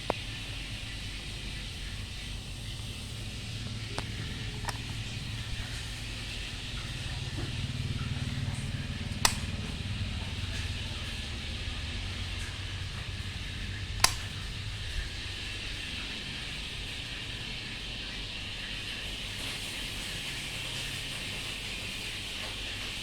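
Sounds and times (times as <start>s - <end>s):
ceiling fan humming: 0.0s - 23.0s
sharp click: 9.2s - 9.6s, 14.0s - 14.4s.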